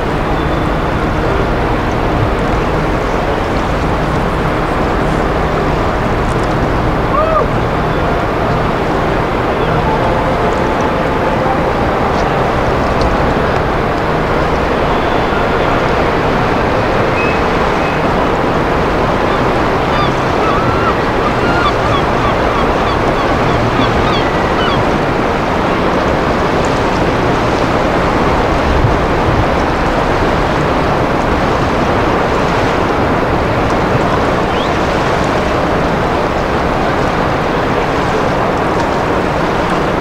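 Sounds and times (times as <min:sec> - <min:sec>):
low steady hum: 0:00.0 - 0:40.0
sea surf: 0:00.0 - 0:40.0
wind: 0:00.0 - 0:40.0.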